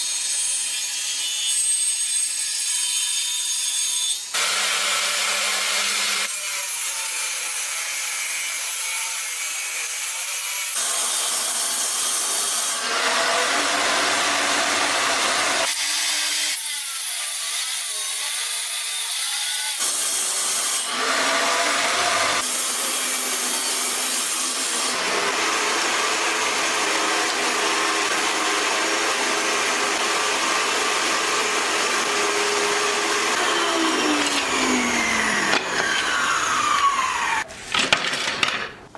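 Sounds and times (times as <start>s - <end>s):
wood being sawn and rubbed: 20.9s - 37.7s.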